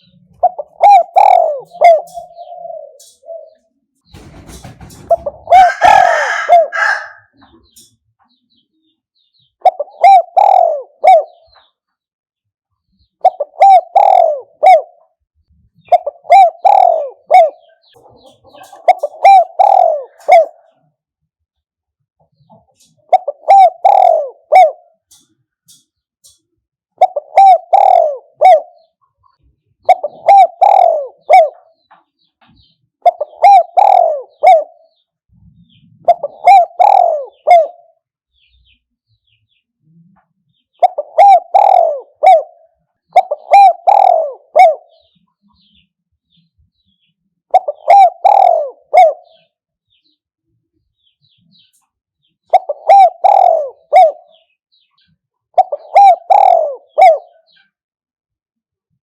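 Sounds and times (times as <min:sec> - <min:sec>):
dove cooing: 0:00.0 - 0:07.9, 0:09.5 - 0:11.7, 0:13.1 - 0:21.0, 0:22.5 - 0:26.4, 0:27.0 - 0:31.9, 0:33.0 - 0:38.5, 0:39.8 - 0:45.8, 0:47.5 - 0:49.6, 0:52.4 - 0:54.6, 0:55.4 - 0:57.8.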